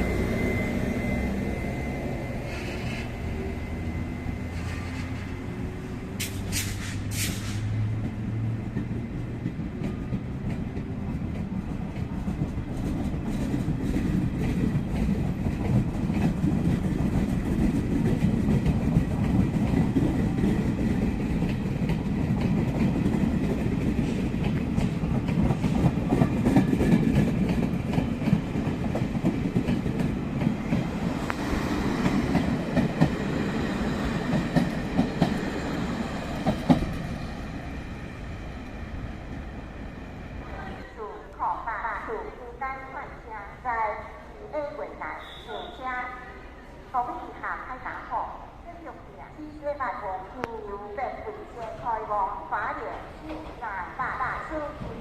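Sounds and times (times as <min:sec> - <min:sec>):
train wheels clicking on rails: 0:00.0 - 0:40.6.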